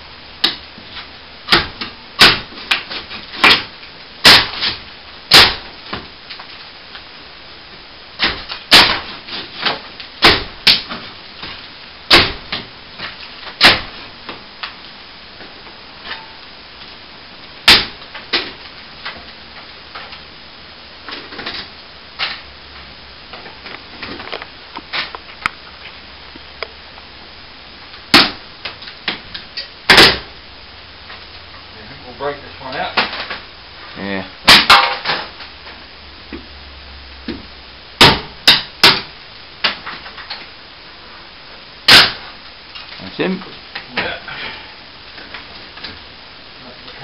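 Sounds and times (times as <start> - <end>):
knocks and bangs on ceiling vent: 1.5 - 6.1, 8.2 - 14.4.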